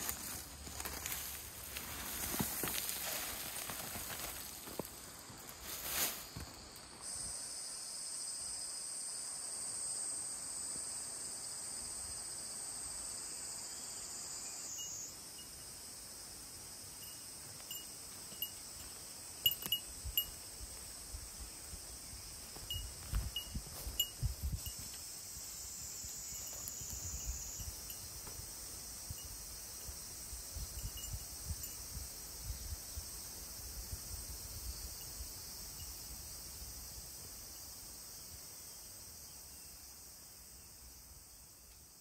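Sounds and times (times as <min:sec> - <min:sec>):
rustling: 0:00.0 - 0:06.6
insects singing in chorus: 0:00.0 - 0:42.0.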